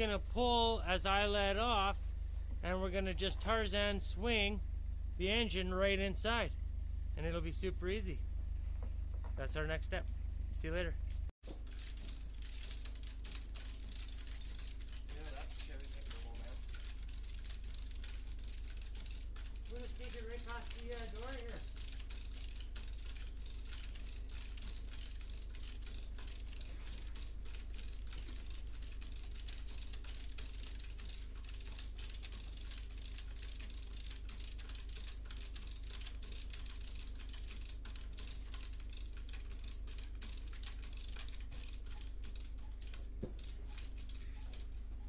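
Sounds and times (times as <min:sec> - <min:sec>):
ratchet clicking rapidly: 0:10.8 - 0:45.0.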